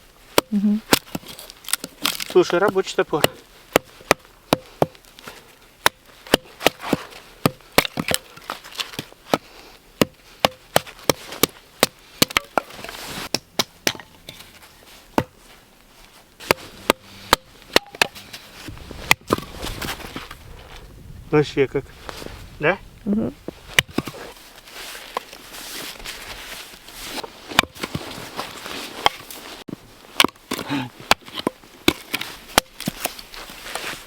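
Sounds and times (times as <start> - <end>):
axe chopping wood: 0.3 - 5.0, 5.8 - 14.5, 15.1 - 15.4, 16.4 - 18.4, 19.0 - 19.6, 23.8 - 24.2, 27.5 - 28.0, 30.2 - 33.1.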